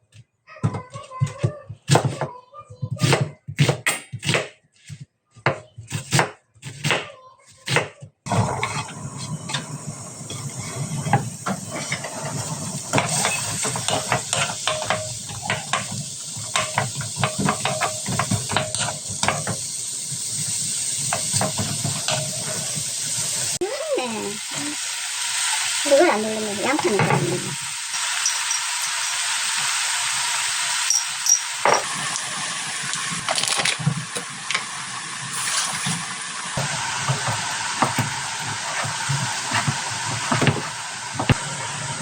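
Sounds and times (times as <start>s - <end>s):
spatula scraping a pan: 8.3s - 19.7s, 20.4s - 23.6s, 35.3s - 36.1s, 36.7s - 41.4s
vegetables sizzling in a frying pan: 8.3s - 42.0s
kitchen knocks: 39.5s - 41.4s.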